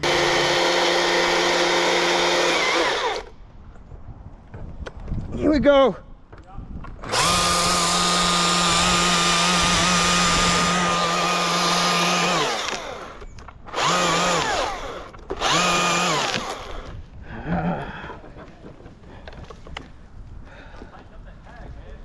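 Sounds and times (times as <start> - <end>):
chainsaw revving: 0.0 - 3.3, 7.0 - 16.9.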